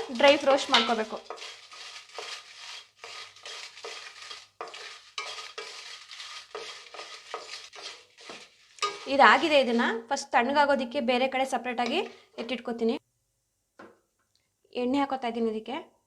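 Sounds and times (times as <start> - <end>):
spatula scraping pan: 0.0 - 10.2, 11.7 - 12.6.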